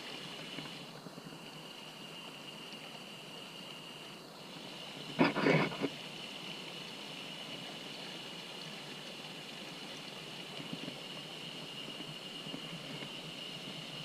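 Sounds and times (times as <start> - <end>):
mountain stream running: 0.0 - 14.0.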